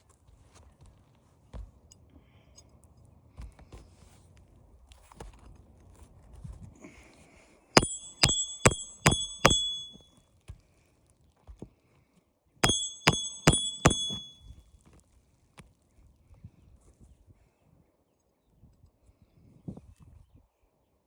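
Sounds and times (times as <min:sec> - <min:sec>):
hammer striking nail: 0:07.8 - 0:10.0, 0:12.6 - 0:14.4.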